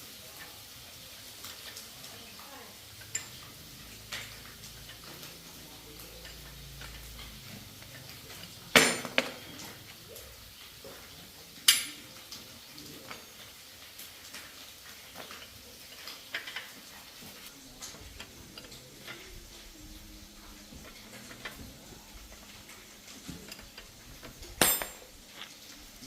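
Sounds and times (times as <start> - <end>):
ringing metallic clanks: 24.6 - 25.1.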